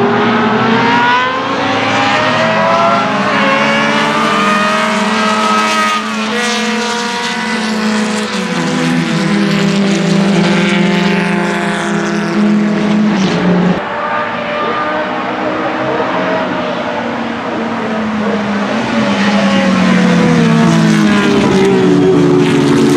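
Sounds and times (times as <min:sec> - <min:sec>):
racing car engine: 0:00.0 - 0:22.9.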